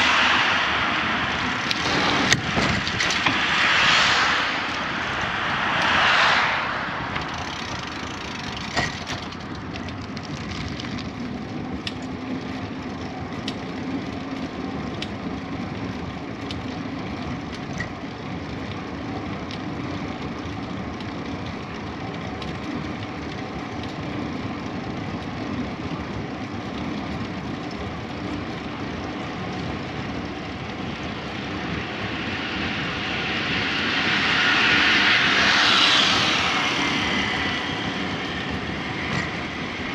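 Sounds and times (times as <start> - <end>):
passing whoosh: 0.0 - 9.7, 30.5 - 39.9
wind noise: 0.0 - 15.3, 16.1 - 39.9
bicycle rolling: 1.0 - 3.4, 7.0 - 34.2, 36.7 - 39.9.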